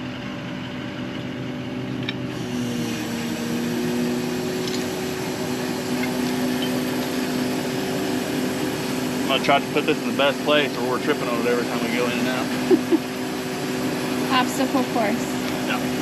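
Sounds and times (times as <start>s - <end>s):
engine droning hum: 0.0s - 16.0s.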